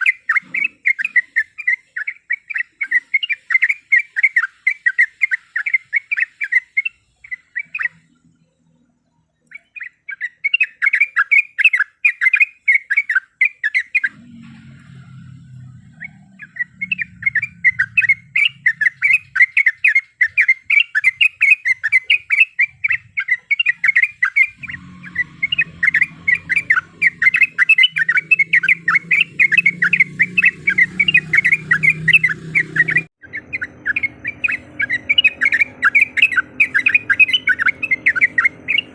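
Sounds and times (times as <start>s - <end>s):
bird chattering song: 0.0s - 38.9s
low hum: 14.1s - 19.4s, 24.5s - 38.9s.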